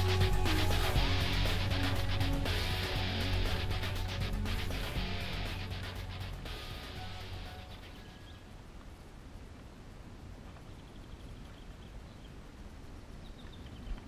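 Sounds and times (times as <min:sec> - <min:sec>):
steady low rumble: 0:00.0 - 0:08.0
small bird chirping: 0:06.6 - 0:08.6, 0:10.6 - 0:12.5, 0:13.2 - 0:14.0.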